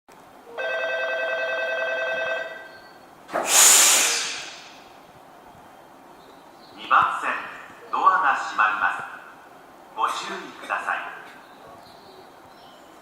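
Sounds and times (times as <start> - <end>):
train compressed-air hiss: 3.3 - 4.9.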